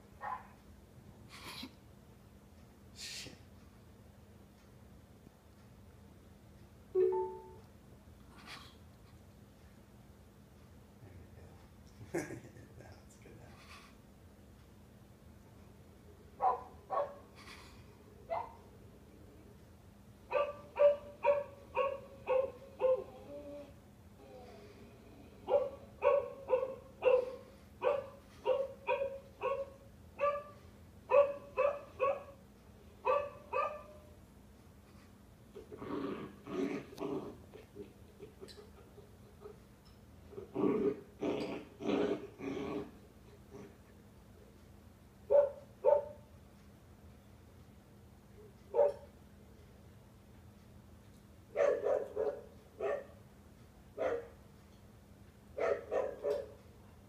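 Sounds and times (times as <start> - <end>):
recorded dog barking: 0.2 - 0.6, 16.4 - 17.3, 18.3 - 18.7, 20.3 - 23.2, 25.4 - 32.4, 33.0 - 34.1, 45.3 - 46.3, 48.7 - 49.1, 51.5 - 53.2, 54.0 - 54.4, 55.6 - 56.6.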